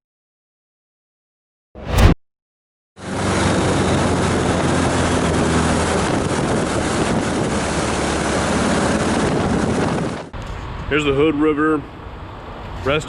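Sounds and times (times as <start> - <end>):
wind buffeting microphone: 3.3 - 10.3.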